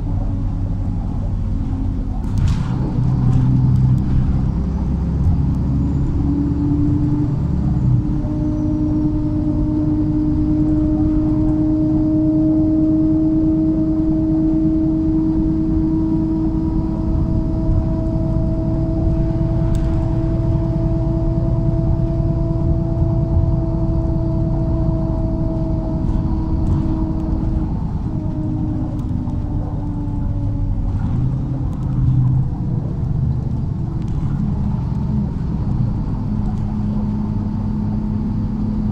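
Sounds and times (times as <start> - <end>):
bus engine rumble: 0.0 - 38.9
drivetrain whine: 0.0 - 38.9
click: 19.7 - 20.1, 33.0 - 34.3, 36.4 - 36.7.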